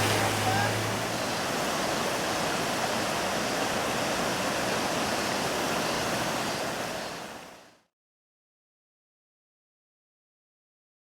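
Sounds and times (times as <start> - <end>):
river rushing: 0.0 - 7.8.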